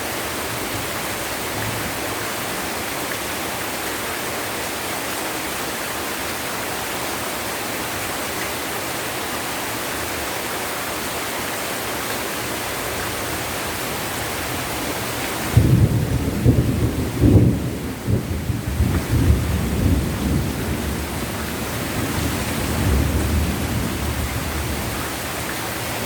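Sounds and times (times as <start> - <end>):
heavy rain pouring: 0.0 - 26.0
thunderclap: 15.5 - 24.9.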